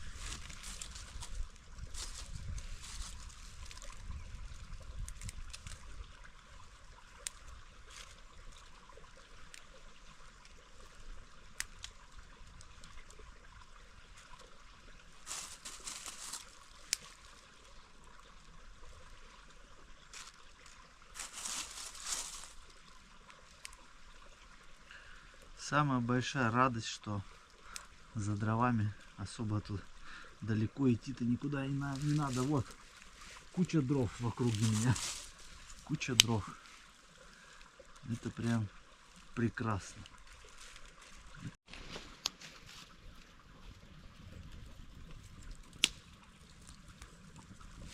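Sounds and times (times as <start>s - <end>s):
rustling: 0.0s - 4.0s, 15.2s - 17.4s, 20.1s - 22.7s, 31.9s - 36.9s
stream trickling: 0.0s - 47.9s.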